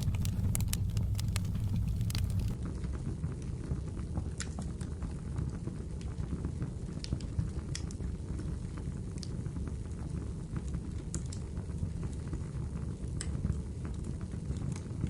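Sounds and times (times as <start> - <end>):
low rumble of flame: 0.0 - 2.6
wood fire crackling and popping: 0.0 - 2.6.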